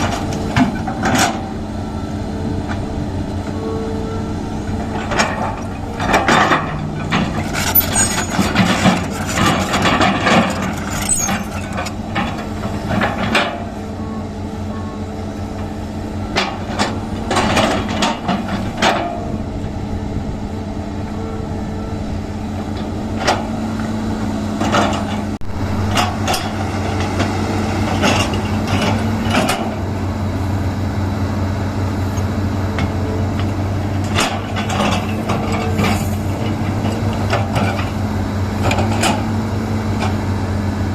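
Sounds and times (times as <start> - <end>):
excavator engine running: 0.0 - 40.9
excavator bucket knocks and clanks: 4.8 - 13.8.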